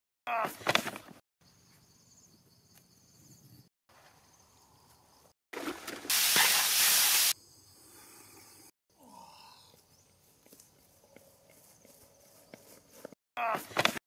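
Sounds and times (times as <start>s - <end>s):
herbs sizzling in hot oil: 6.1s - 7.4s.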